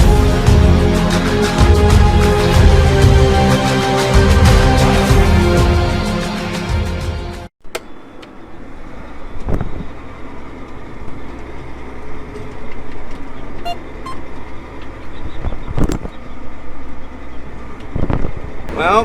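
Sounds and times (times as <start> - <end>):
road noise: 7.6 - 19.0
vehicle engine rumble: 7.7 - 19.0.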